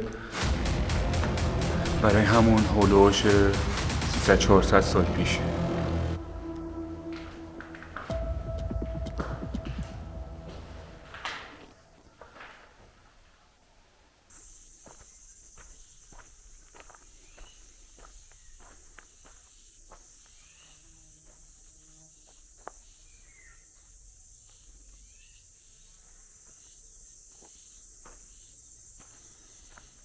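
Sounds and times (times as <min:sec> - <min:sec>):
footsteps: 0:00.0 - 0:13.5
high-pitched insect chorus: 0:14.3 - 0:30.0.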